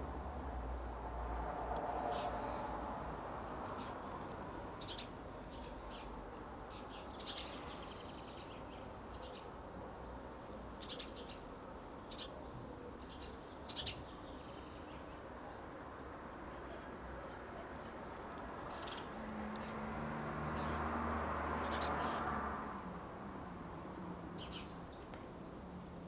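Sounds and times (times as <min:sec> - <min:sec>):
low background noise: 0:00.0 - 0:26.0
small birds chirping: 0:03.7 - 0:09.6, 0:10.4 - 0:16.2, 0:21.6 - 0:22.3, 0:24.4 - 0:26.0.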